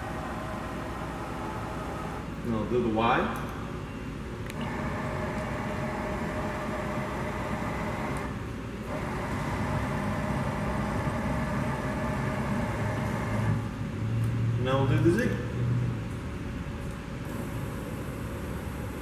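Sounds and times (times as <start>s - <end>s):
servo motor hum and whine: 4.5s - 13.6s.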